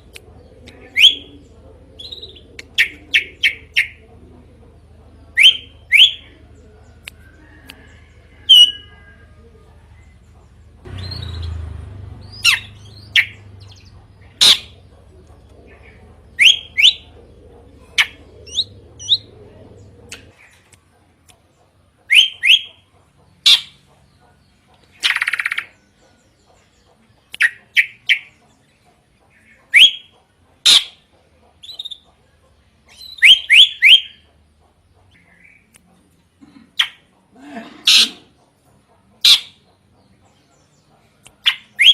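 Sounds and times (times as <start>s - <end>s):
bird whistling song: 0.9s - 1.3s, 5.4s - 6.2s, 16.4s - 17.1s, 22.1s - 22.8s, 29.7s - 31.0s, 31.6s - 32.0s, 32.9s - 34.2s, 41.4s - 41.9s
low hum: 9.6s - 20.4s
harsh buzzy bird call: 37.8s - 38.4s.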